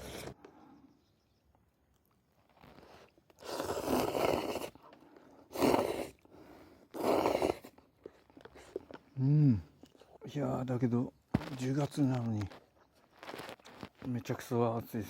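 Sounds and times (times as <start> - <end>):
person slurping noodles: 2.6 - 9.7.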